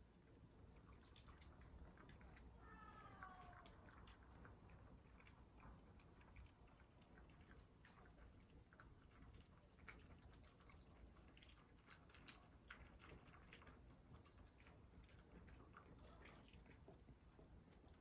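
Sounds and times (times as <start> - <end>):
dog chewing food: 3.8 - 18.0.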